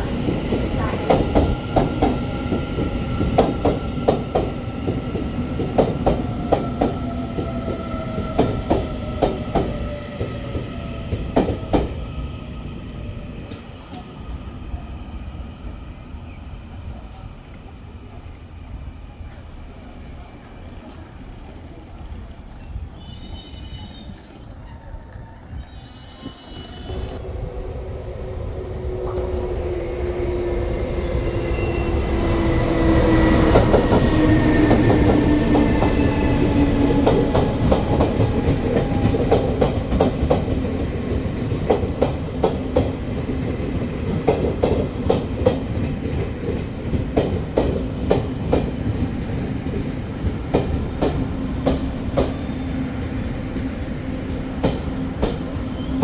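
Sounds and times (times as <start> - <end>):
train passing: 0.0 - 56.0
train wheels clicking over joints: 31.9 - 52.5, 54.2 - 56.0.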